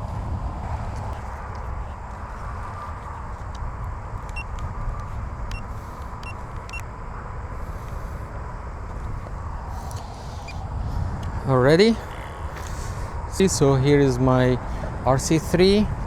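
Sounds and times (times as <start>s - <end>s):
wind buffeting microphone: 0.0s - 16.0s
faint high ticks: 3.3s - 6.9s.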